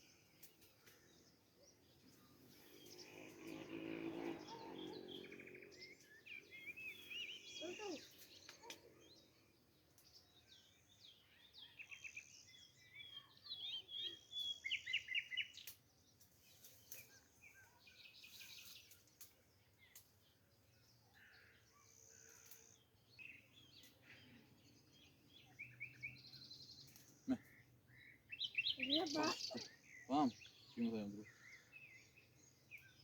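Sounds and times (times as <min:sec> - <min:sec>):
small birds chirping: 0:00.0 - 0:33.0
faint clicks: 0:18.8 - 0:20.1.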